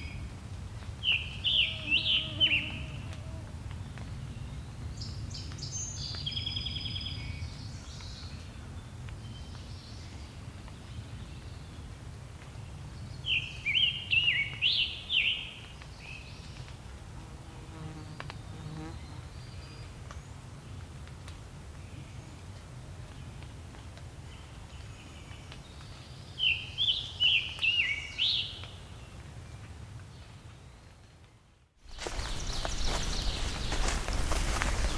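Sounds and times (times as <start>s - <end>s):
songbirds singing: 1.0s - 10.4s, 31.9s - 34.9s.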